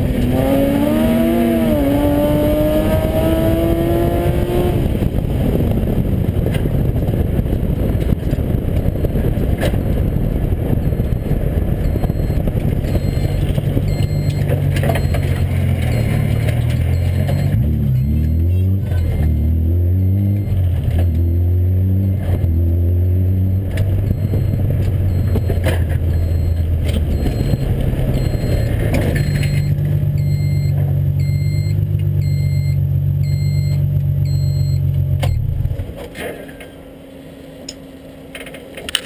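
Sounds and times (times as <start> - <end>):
race car engine revving: 0.0 - 5.8, 12.7 - 32.2.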